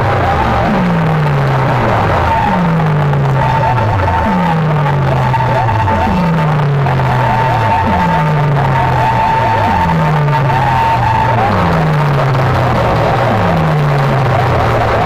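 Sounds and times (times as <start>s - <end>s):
electronic dance music: 0.0s - 15.0s
low falling bass hit: 0.0s - 15.0s
steady high tone: 0.0s - 15.0s.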